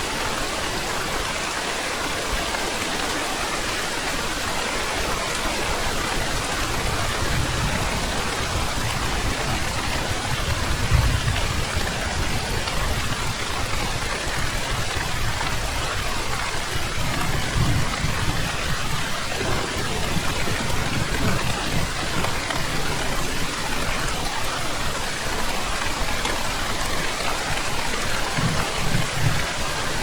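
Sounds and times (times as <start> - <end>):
heavy rain: 0.0 - 30.0
thunder rumbling: 5.6 - 25.0, 25.7 - 30.0.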